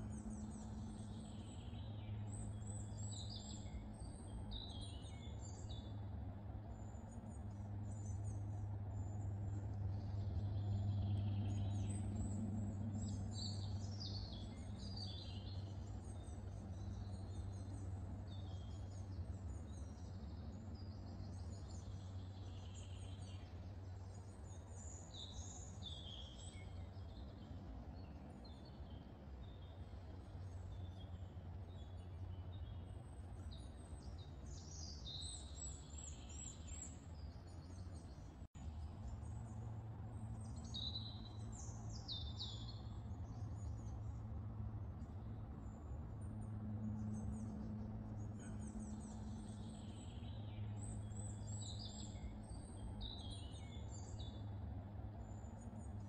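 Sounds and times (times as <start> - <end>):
birds singing and chirping: 0.0 - 6.0, 28.0 - 38.4, 39.0 - 44.2, 45.0 - 54.6
steady low hum: 26.6 - 51.5.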